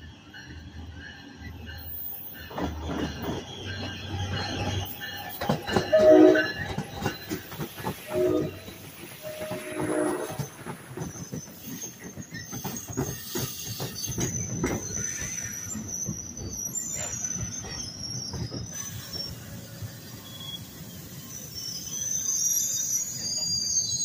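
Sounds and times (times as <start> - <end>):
train rumble: 0.0 - 21.6
train wheels clacking over rail joints: 2.4 - 19.1
high-pitched wheel squeal: 2.7 - 24.0.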